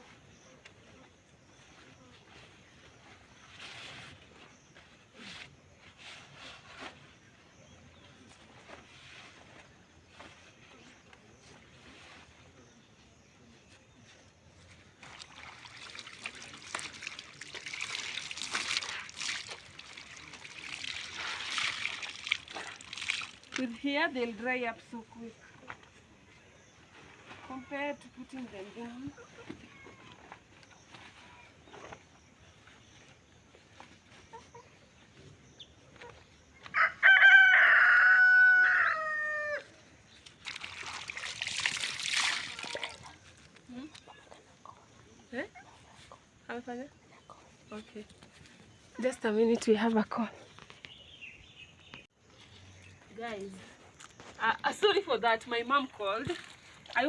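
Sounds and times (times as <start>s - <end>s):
water trickling from wet laundry: 15.0s - 24.3s, 40.2s - 44.2s, 55.2s - 57.0s
rooster crowing: 36.7s - 39.7s.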